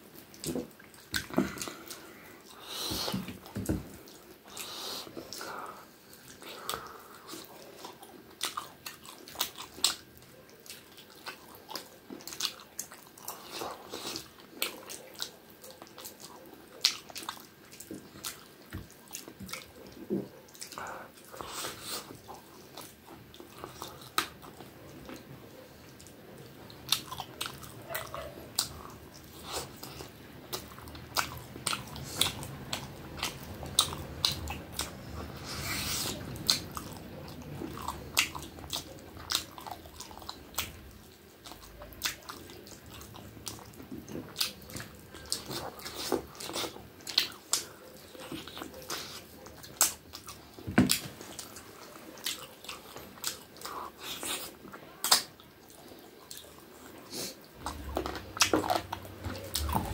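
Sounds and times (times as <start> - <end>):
man chewing food: 0.0 - 59.9
wet mouth clicks and smacks: 55.0 - 55.4.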